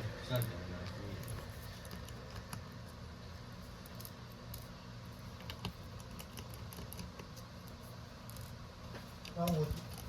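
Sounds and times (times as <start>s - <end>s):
steady low hum: 0.0s - 10.0s
small clicks and taps: 5.4s - 7.5s.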